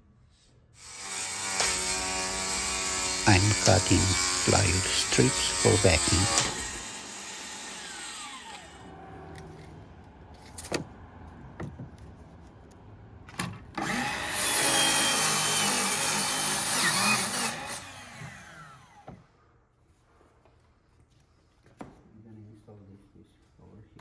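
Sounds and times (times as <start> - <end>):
power saw cutting wood: 0.8 - 9.0, 13.8 - 19.1.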